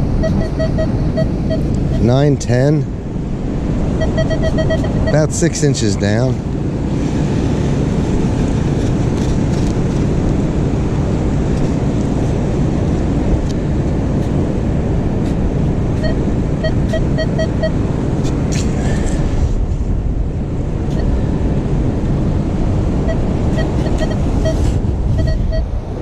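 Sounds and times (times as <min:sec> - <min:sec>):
wind buffeting microphone: 0:00.0 - 0:26.0
pinpointer short beeps: 0:00.2 - 0:02.1, 0:04.0 - 0:05.2, 0:16.0 - 0:17.8, 0:23.1 - 0:24.6, 0:25.2 - 0:25.6.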